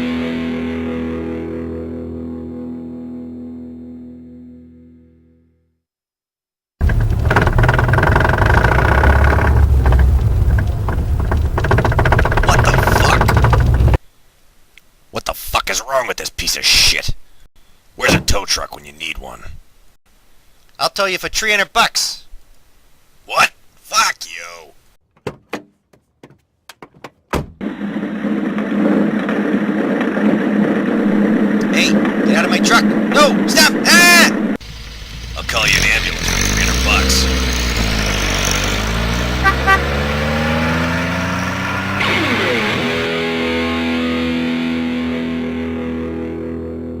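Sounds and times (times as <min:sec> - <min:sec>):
sharp clicks and knocks: 0:06.8 - 0:14.0
vehicle engine running loudly: 0:06.8 - 0:14.0, 0:34.6 - 0:43.1
truck door slamming: 0:27.3 - 0:27.6.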